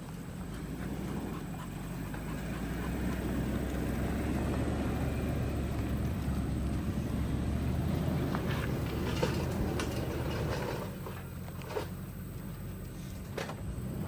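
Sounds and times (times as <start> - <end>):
vehicle engine running low: 0.0 - 14.0.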